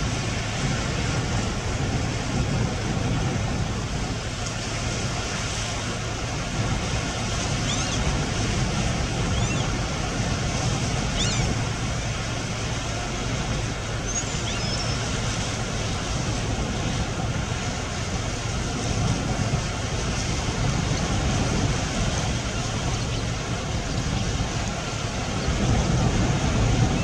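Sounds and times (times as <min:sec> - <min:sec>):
waves on a lake: 0:00.0 - 0:27.0
wind buffeting microphone: 0:00.0 - 0:27.0
faint high chirps: 0:14.0 - 0:15.1.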